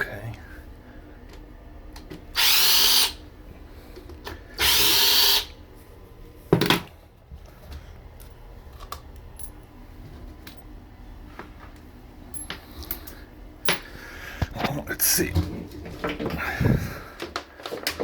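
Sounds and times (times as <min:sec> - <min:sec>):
power drill running: 0:02.3 - 0:03.2, 0:04.6 - 0:05.5.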